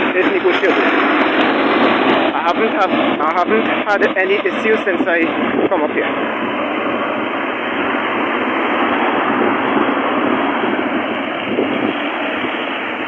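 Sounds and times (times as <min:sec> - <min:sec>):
road noise: 0:00.0 - 0:13.0.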